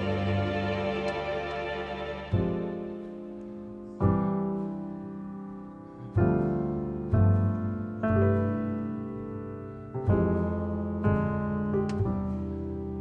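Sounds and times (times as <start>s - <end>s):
piano playing slow chords: 0.0s - 13.0s.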